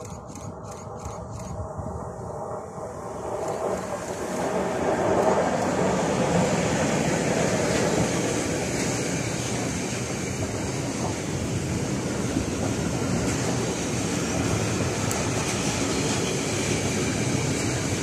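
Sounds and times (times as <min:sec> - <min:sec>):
freight train wheels on rail: 0:00.0 - 0:18.0.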